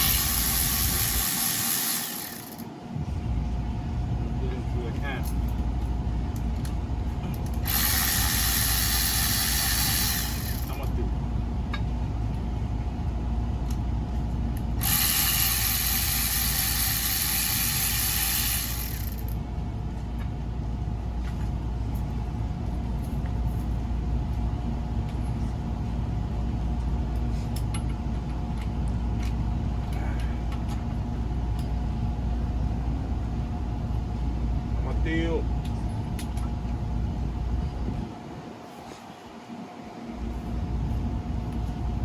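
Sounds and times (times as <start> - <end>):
ratchet wrench clicking: 0.0 - 2.6, 7.4 - 10.8, 14.8 - 19.4
steady background hum: 0.0 - 42.0.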